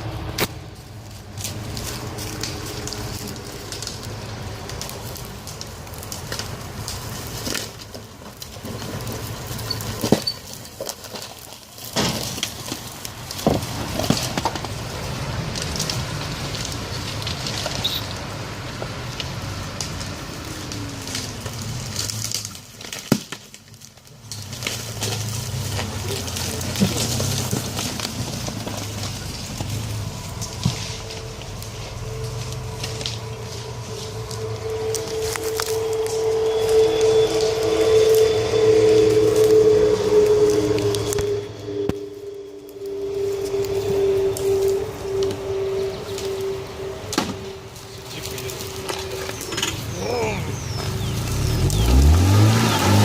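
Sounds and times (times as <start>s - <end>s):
twigs snapping: 1.2s - 8.8s, 9.9s - 38.3s, 42.7s - 53.0s
footsteps through forest litter: 23.7s - 53.0s.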